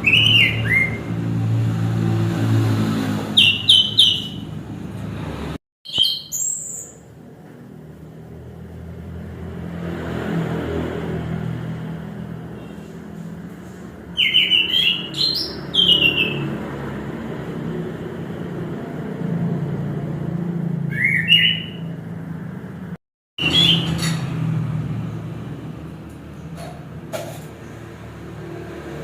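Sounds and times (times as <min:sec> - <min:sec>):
thrush singing whistled phrases: 0:00.0 - 0:01.1, 0:03.4 - 0:04.5, 0:05.9 - 0:07.0, 0:14.1 - 0:16.4, 0:20.9 - 0:21.9, 0:23.4 - 0:23.9.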